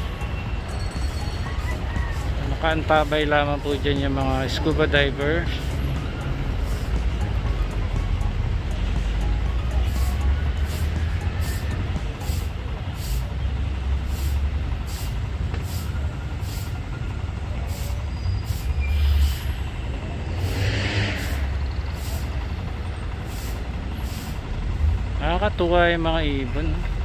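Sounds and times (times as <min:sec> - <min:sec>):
low engine rumble: 0:00.0 - 0:27.0
short hiss burst: 0:14.1 - 0:16.7.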